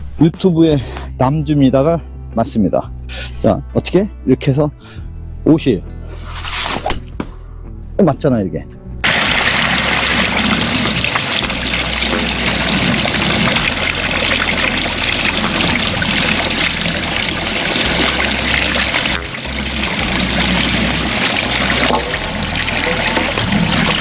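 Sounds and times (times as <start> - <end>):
stream water rushing: 9.0 - 24.0.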